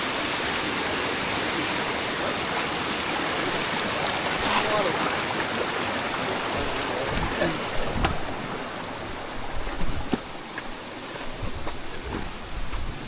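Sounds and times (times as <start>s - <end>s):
flowing water rushing: 0.0s - 13.0s.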